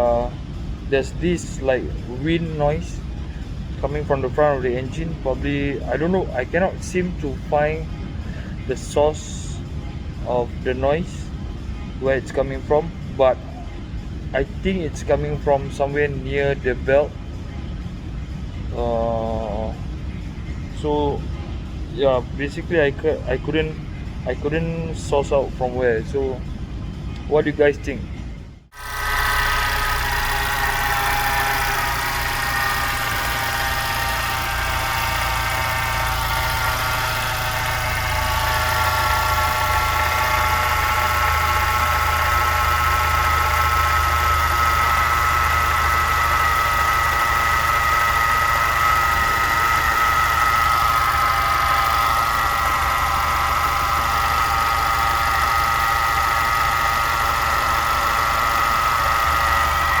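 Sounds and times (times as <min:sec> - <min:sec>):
car engine idling: 0:28.7 - 1:00.0.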